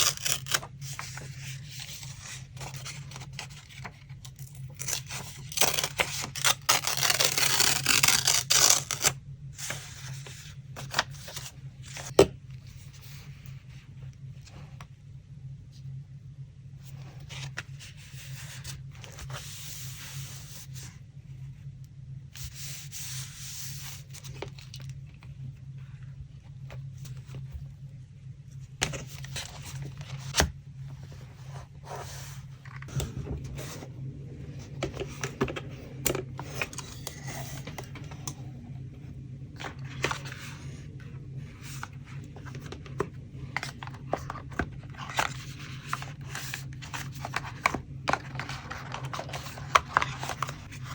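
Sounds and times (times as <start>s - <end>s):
paper tearing and rustling: 0.0s - 9.2s
low hum: 0.0s - 50.9s.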